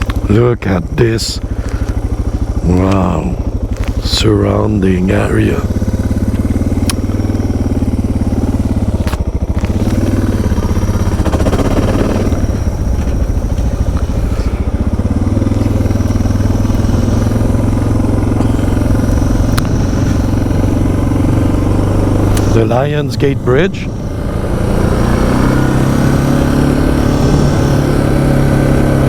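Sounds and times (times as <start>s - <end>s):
motorcycle engine running: 0.0s - 29.0s
sharp clicks: 22.2s - 22.5s.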